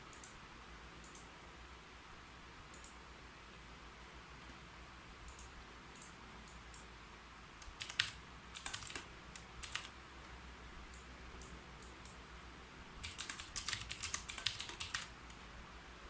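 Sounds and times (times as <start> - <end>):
typing on computer keyboard: 7.6 - 10.0, 13.0 - 15.2.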